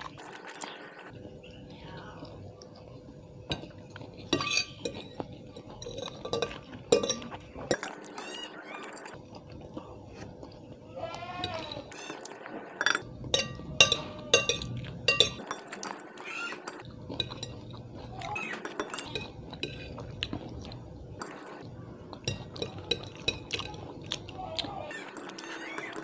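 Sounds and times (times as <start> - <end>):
soft eating noise: 0.0 - 26.0
utensil clinking against bowl: 3.5 - 8.3, 12.8 - 20.0.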